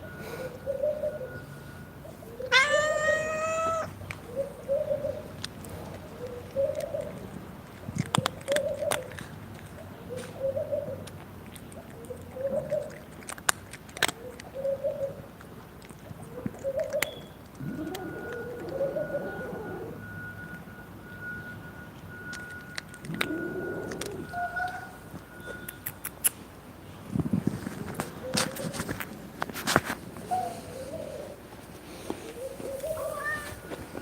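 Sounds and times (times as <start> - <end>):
dove cooing: 0.3 - 11.1, 11.7 - 13.1, 14.1 - 20.4, 22.9 - 25.4, 27.9 - 29.0, 30.2 - 34.0
cat meowing: 2.4 - 4.0, 32.9 - 33.6.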